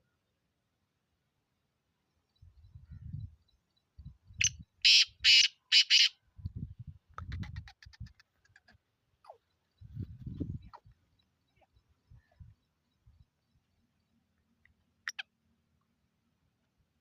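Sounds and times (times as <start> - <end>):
francolin calling: 15.1 - 15.3.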